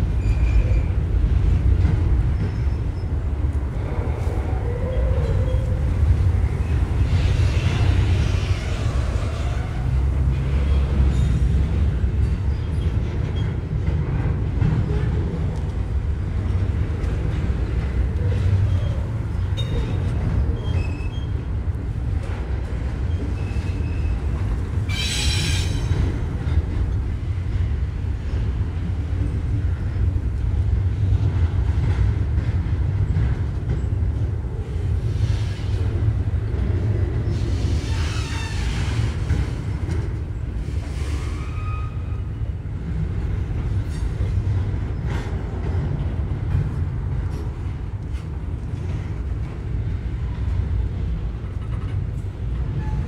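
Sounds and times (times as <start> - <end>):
freight train rumbling: 0.0 - 53.0
wheel squeal screech: 37.3 - 39.1, 40.9 - 42.3.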